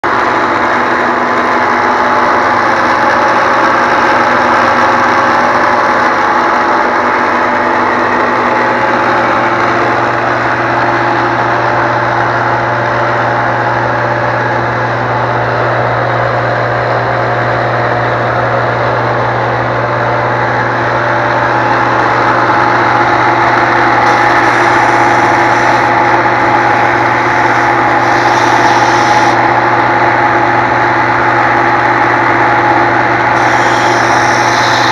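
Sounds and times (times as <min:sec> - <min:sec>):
belt sander humming: 0:20.6 - 0:34.9.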